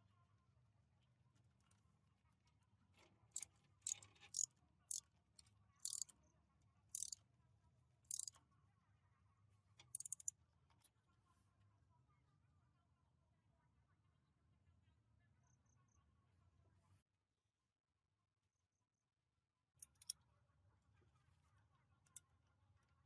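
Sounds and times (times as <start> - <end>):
rattle of clicks: 3.4 - 4.5, 5.8 - 6.1, 7.0 - 7.2, 8.1 - 8.3, 10.0 - 10.3, 19.8 - 20.1.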